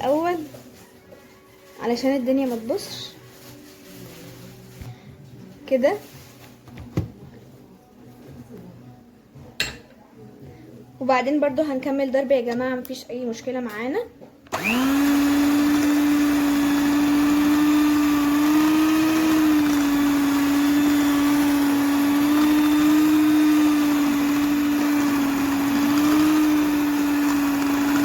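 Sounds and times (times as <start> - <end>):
electric hand mixer whining: 14.5 - 28.0.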